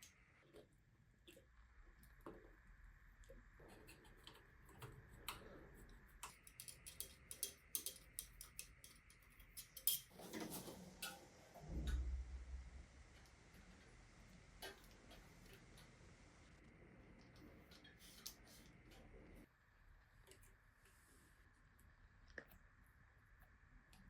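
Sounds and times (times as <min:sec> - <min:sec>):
light clicks and ticks: 0:03.2 - 0:10.1
low bump: 0:11.6 - 0:14.2.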